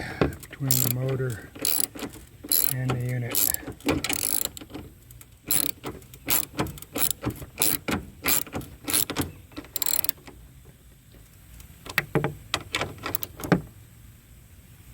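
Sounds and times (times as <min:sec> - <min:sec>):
ratchet wrench ratcheting: 0:00.4 - 0:10.2, 0:12.7 - 0:13.5
sharp tool clicks: 0:00.7 - 0:10.2.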